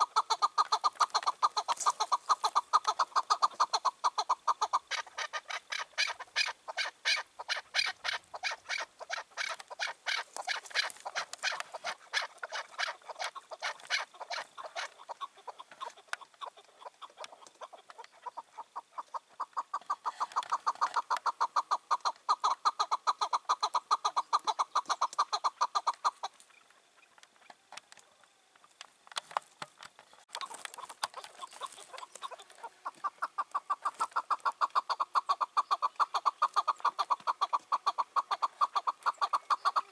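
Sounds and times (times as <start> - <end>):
partridge calling rapid chuk notes: 0.0 - 27.5, 30.4 - 39.9.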